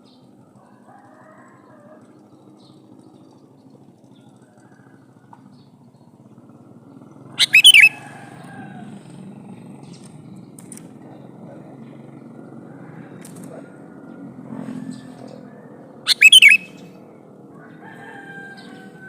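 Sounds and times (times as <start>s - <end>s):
bird call burst: 7.4s - 8.0s, 16.1s - 16.8s.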